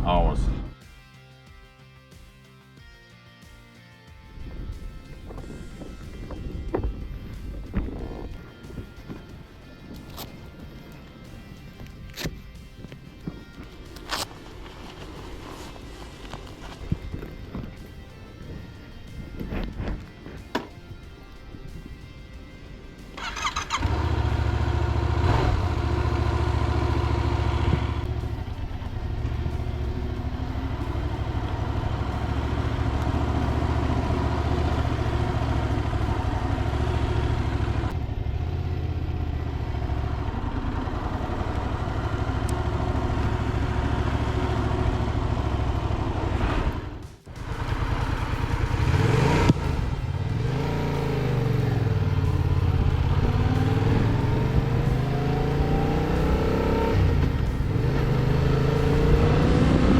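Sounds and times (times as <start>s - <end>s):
motorcycle engine running: 22.8s - 59.9s.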